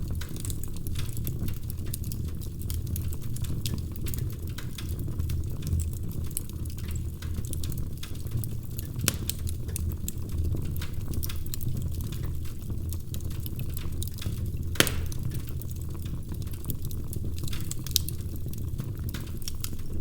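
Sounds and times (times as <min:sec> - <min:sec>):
fireplace fire crackling: 0:00.0 - 0:20.0.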